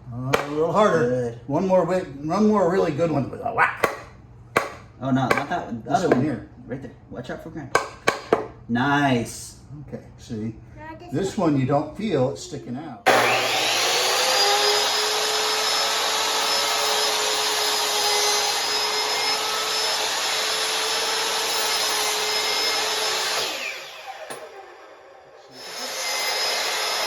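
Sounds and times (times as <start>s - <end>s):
electric drill whining: 13.1s - 27.0s.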